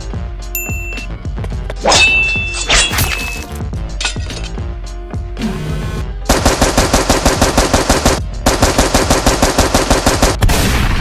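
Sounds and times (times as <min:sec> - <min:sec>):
machine-gun bursts: 0:06.3 - 0:10.4.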